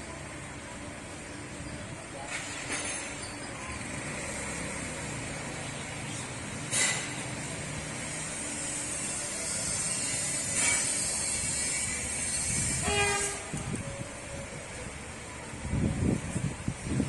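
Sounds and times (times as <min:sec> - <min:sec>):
train rumbling: 0:00.0 - 0:17.0
train horn blast: 0:11.8 - 0:13.9.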